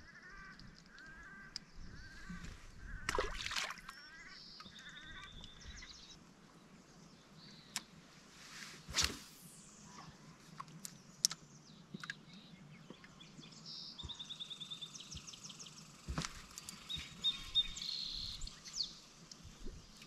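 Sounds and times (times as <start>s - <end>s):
small birds chirping and trilling: 0.2s - 6.2s, 10.8s - 20.0s.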